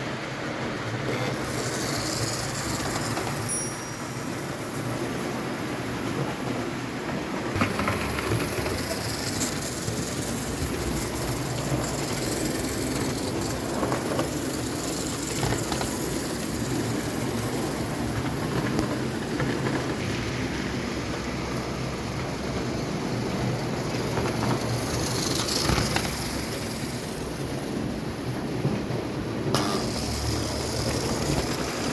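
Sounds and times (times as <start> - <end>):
toy train motor hum: 1.0 - 4.3, 7.6 - 20.0, 22.6 - 27.9, 29.5 - 31.9.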